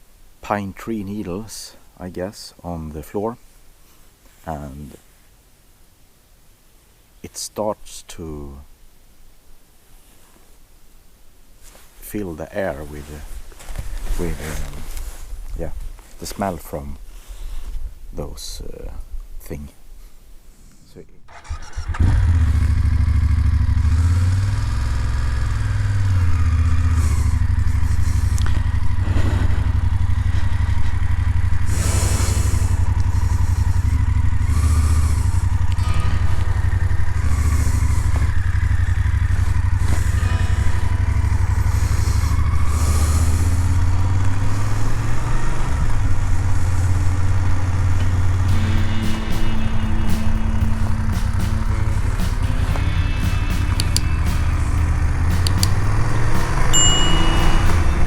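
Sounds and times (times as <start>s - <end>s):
motorcycle engine running: 21.3s - 58.0s
wind hiss: 24.8s - 58.0s.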